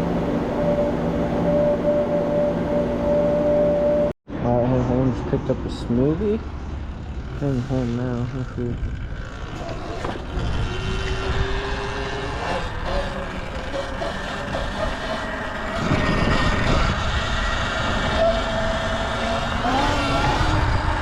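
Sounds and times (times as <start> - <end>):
wind rushing over microphone: 8.4 - 13.6, 14.5 - 21.0.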